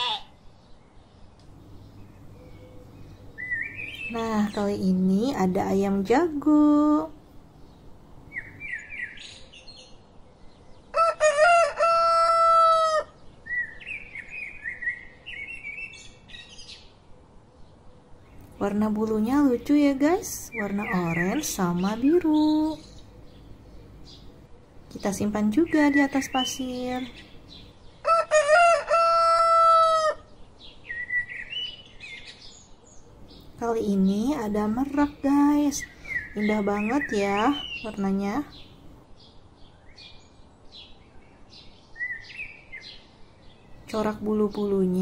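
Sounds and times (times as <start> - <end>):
high chirping: 1.6 - 5.4
rooster crowing: 10.9 - 13.2, 28.0 - 30.3.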